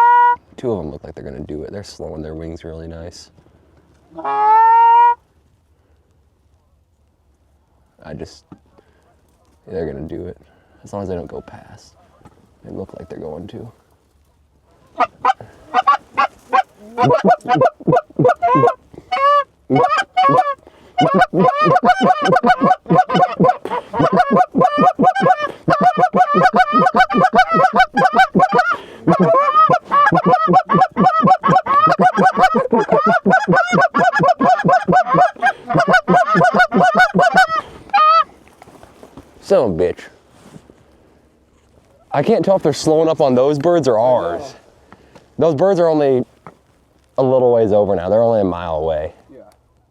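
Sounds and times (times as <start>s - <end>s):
goose call honks and clucks: 0.0s - 0.4s, 4.1s - 5.2s, 14.7s - 38.3s.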